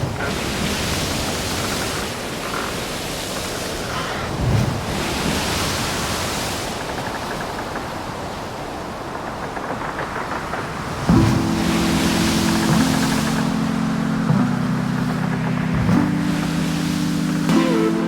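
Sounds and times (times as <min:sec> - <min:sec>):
sea rushing: 0:00.0 - 0:18.0
wind: 0:00.0 - 0:18.0
low wave surge: 0:11.2 - 0:18.0.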